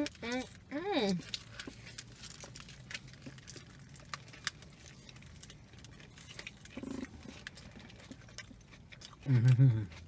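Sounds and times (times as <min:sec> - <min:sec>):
low steady hum: 0:00.0 - 0:10.0
people chewing and biting: 0:00.0 - 0:10.0.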